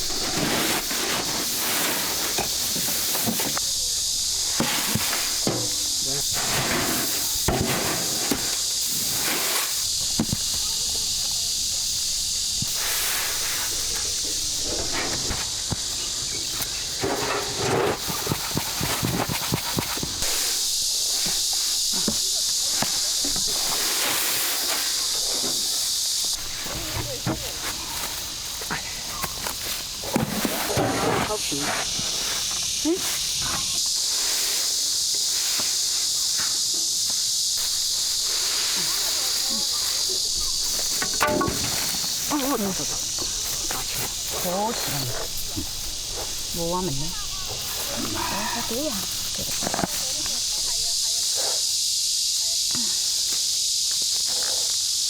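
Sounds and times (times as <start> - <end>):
cicadas droning: 0.0 - 55.0
insects buzzing: 0.0 - 55.0
rustling and light knocks: 35.1 - 51.0.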